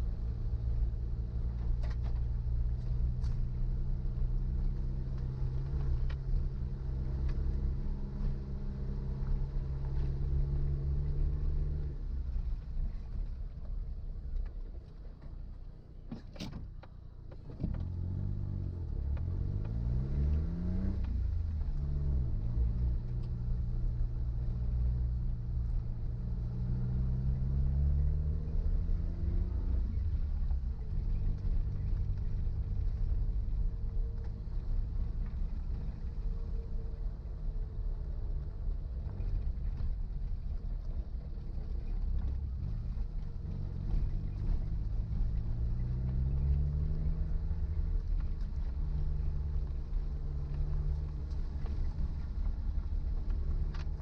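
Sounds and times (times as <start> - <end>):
car engine driving: 0.0 - 54.0.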